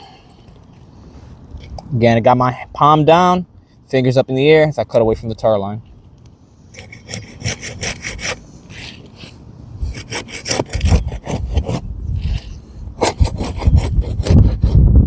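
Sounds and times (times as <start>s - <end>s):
tool scraping under shingles: 6.6s - 14.9s.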